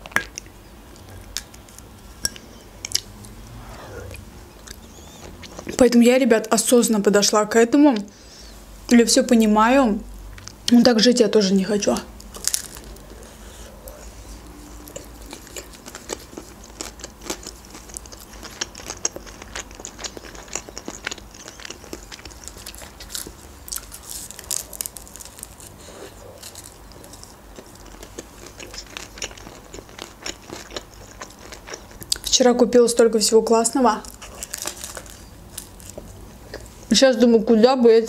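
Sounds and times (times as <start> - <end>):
person chewing food: 0.0 - 5.8, 12.2 - 32.3, 34.1 - 36.8.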